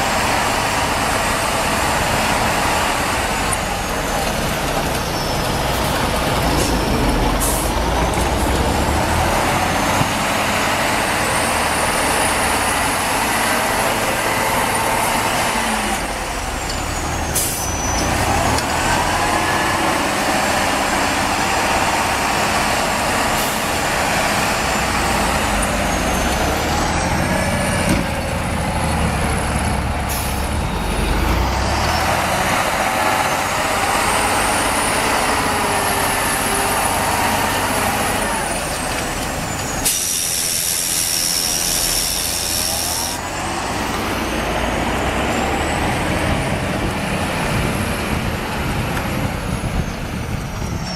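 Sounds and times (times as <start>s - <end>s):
diesel engine under load: 0.0s - 50.9s.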